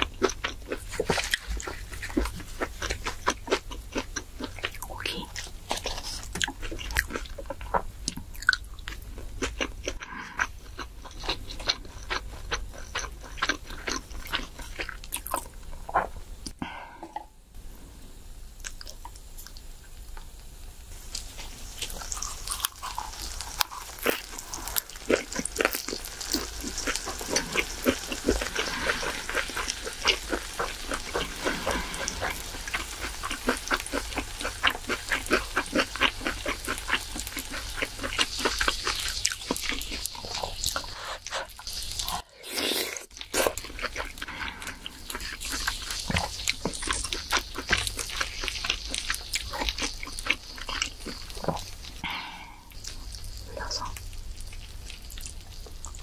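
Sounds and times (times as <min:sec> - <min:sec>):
wet crunchy chewing: 0:00.0 - 0:16.6, 0:21.1 - 0:56.0.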